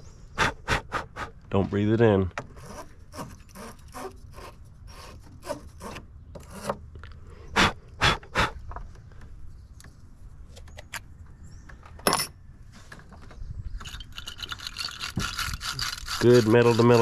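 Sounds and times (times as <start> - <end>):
scraping metal terminal: 2.5 - 6.8, 13.8 - 17.0.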